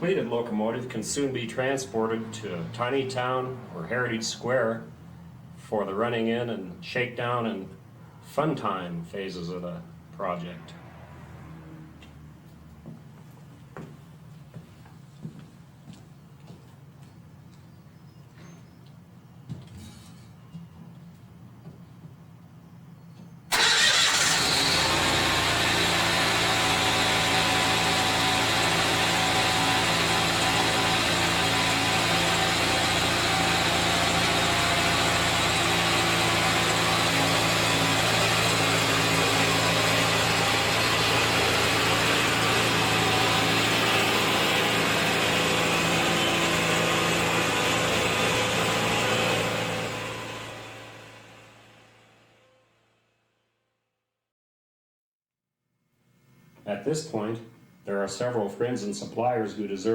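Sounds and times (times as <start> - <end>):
engine running steadily: 23.5 - 52.2.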